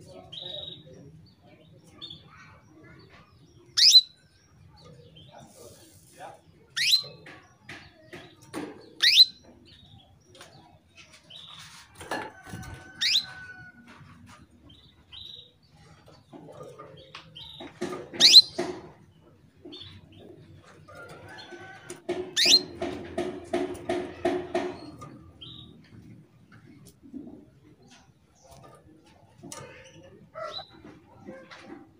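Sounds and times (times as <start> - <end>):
canary calling: 3.6 - 4.2, 6.7 - 7.4, 8.9 - 9.6, 12.8 - 13.7, 17.4 - 18.9, 21.4 - 25.8.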